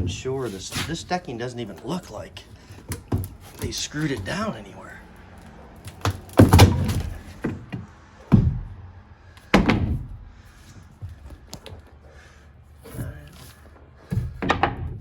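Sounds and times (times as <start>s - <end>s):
wooden boards thunking: 5.9s - 8.8s, 9.5s - 10.4s, 14.0s - 15.0s.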